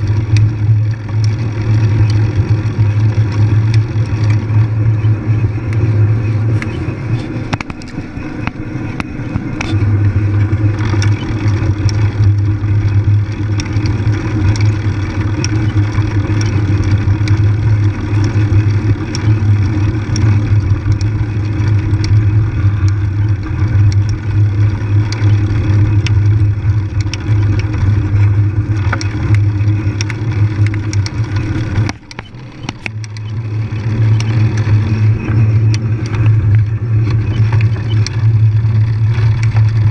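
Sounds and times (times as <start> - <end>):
bike rumbling and rattling: 0.0 - 39.9
clicks: 0.1 - 12.5, 25.0 - 39.9.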